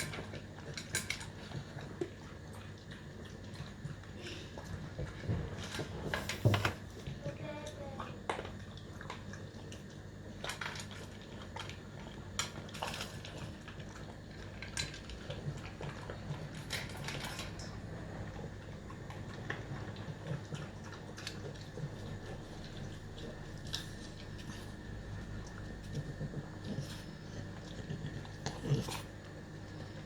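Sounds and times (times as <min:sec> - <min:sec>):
low steady hum: 0:00.0 - 0:30.0
pets crunching food: 0:00.0 - 0:30.0.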